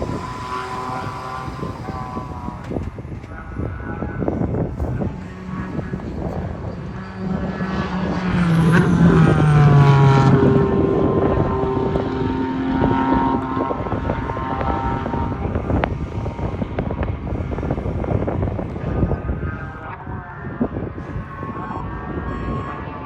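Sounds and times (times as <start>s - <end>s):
race car passing at speed: 0.0s - 3.3s, 4.3s - 19.2s
further engine note: 0.0s - 23.0s.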